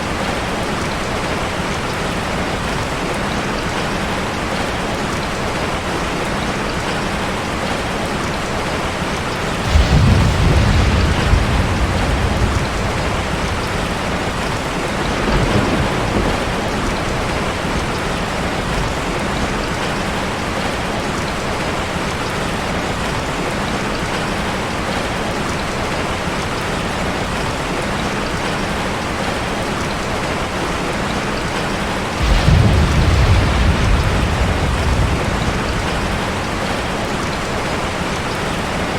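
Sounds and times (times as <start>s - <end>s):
rushing water: 0.0s - 38.9s
deep low rumble: 9.6s - 15.4s, 32.2s - 36.8s.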